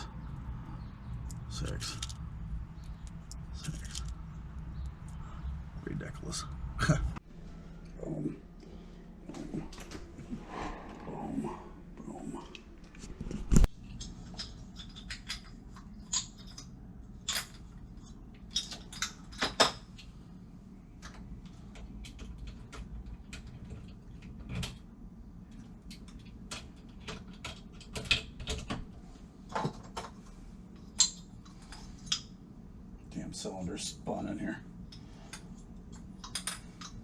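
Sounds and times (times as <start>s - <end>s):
metal lock parts clinking: 1.3s - 4.2s.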